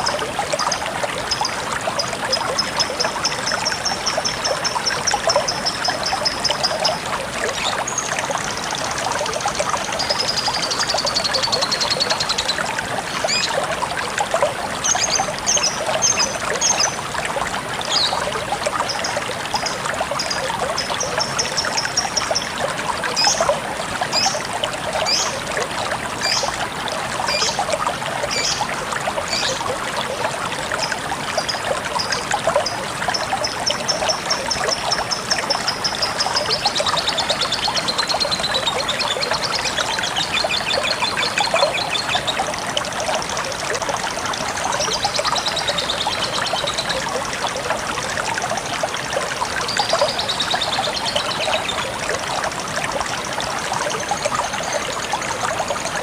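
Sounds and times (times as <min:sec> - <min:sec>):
trickle of flowing water: 0:00.0 - 0:56.0.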